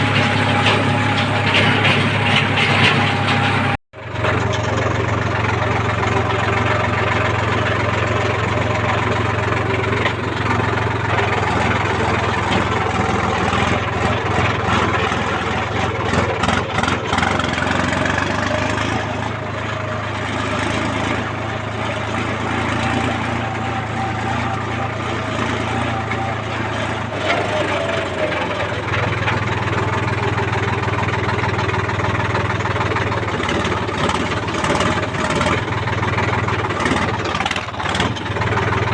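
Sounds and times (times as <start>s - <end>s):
diesel engine running: 0.0s - 38.9s
sharp clicks and clatters: 22.1s - 38.9s.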